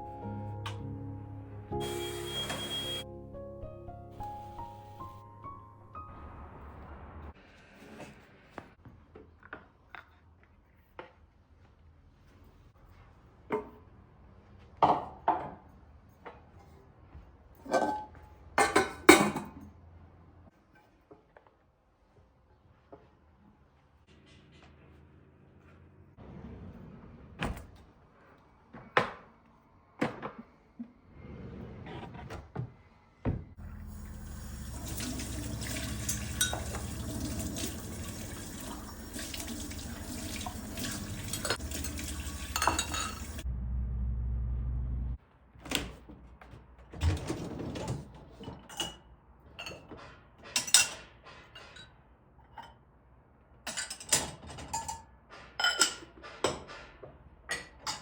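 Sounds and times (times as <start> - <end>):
dishes and cutlery clinking: 17.6 - 19.6, 36.0 - 36.9, 41.3 - 43.4, 48.4 - 52.8, 53.7 - 58.0
tap running into a sink: 34.6 - 43.4
short low rumble: 43.4 - 45.2.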